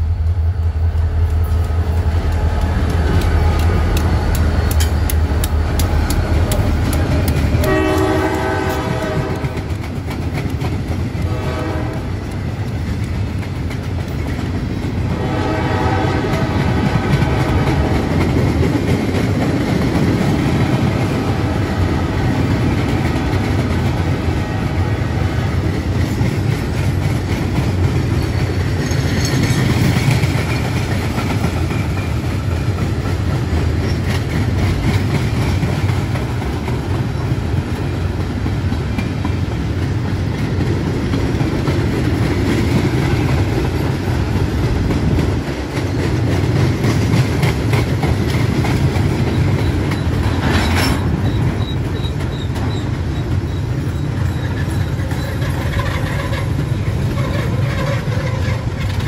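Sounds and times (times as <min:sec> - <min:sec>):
freight cars rumbling: 0:00.0 - 0:59.0
wheel clatter over rail joints: 0:38.8 - 0:59.0
faint wheel squeal: 0:50.6 - 0:58.6.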